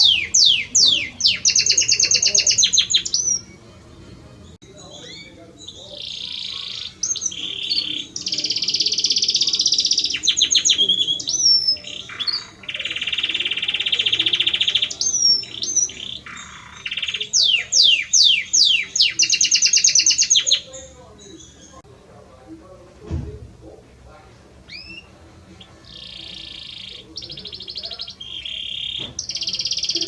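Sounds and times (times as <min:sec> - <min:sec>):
canary singing trills: 0:00.0 - 0:21.9, 0:24.6 - 0:30.0.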